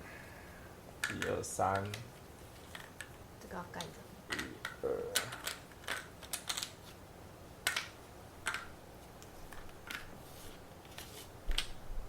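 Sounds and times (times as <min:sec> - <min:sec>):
cardboard tiles clicking on table: 0:03.8 - 0:06.8, 0:07.6 - 0:08.7.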